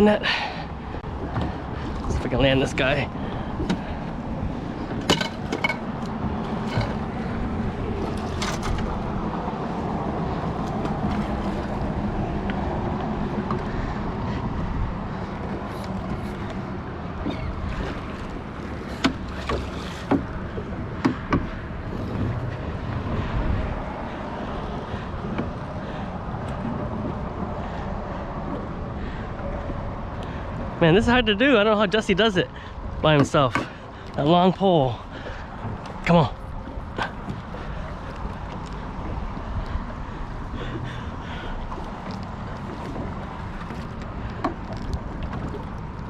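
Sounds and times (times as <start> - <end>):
water rushing around boat: 0.0 - 46.0
wind: 0.0 - 46.0
landing net knocking on boat: 4.9 - 7.0.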